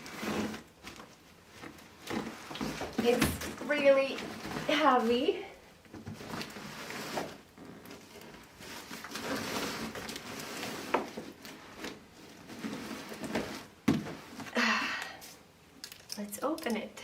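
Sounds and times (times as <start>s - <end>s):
cardboard parcel scraping and rustling: 0.0s - 14.5s
knocks on cardboard parcel: 13.8s - 14.2s.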